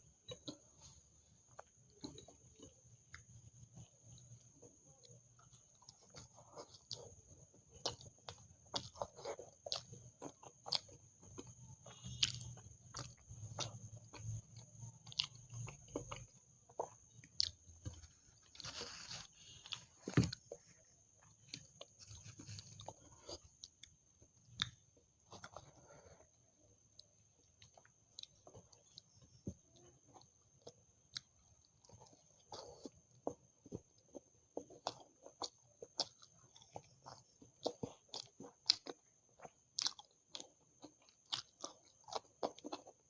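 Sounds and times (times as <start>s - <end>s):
chewing with mouth smacks: 0.1s - 43.0s.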